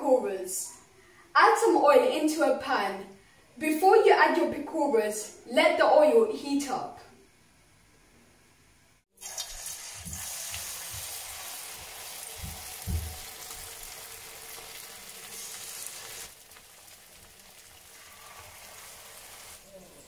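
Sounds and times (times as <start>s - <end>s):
slices deep-frying in oil: 9.2s - 20.0s.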